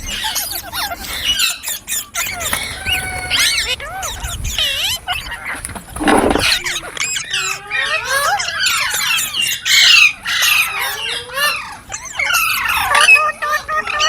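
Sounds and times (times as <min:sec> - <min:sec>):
parrot chirping and squawking: 0:05.4 - 0:13.2.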